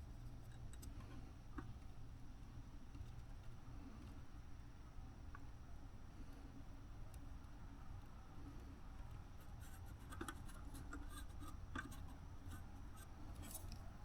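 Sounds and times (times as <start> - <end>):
low steady hum: 0.0 - 14.0
soldering iron scratching and tapping: 9.6 - 12.6.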